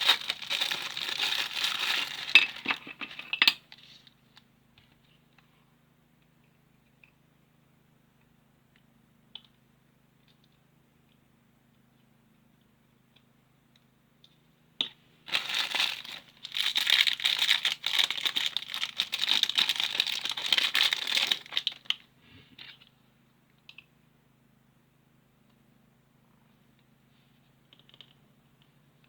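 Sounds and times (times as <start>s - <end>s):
plastic packaging crinkling: 0.0s - 3.4s, 15.3s - 22.0s.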